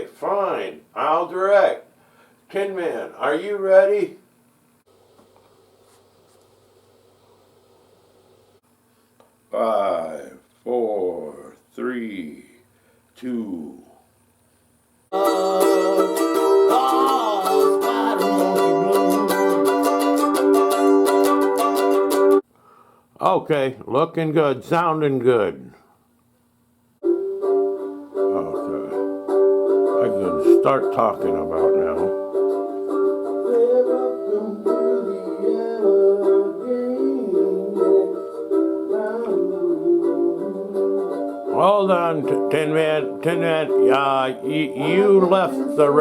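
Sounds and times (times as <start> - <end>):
plucked string instrument blues: 15.1 - 22.4, 27.0 - 46.0.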